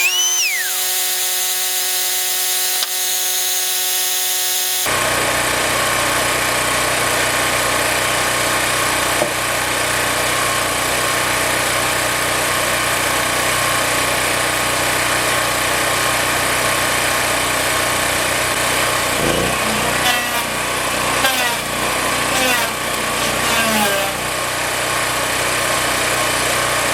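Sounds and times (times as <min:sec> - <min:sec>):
small engine running: 0:00.0 - 0:26.9.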